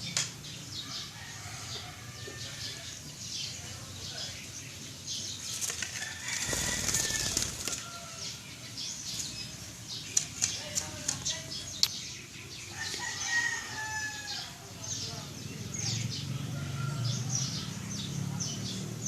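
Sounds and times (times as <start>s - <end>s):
parrot wings flapping: 5.5s - 7.9s.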